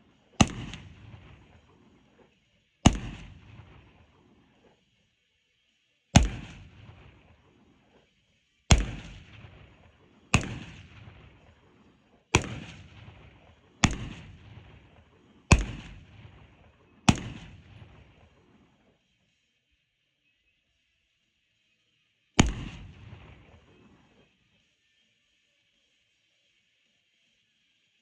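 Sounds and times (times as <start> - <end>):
echoing gunshots: 0.4 - 1.9, 2.8 - 3.9, 6.2 - 7.1, 8.7 - 11.5, 12.3 - 18.5, 22.4 - 23.9.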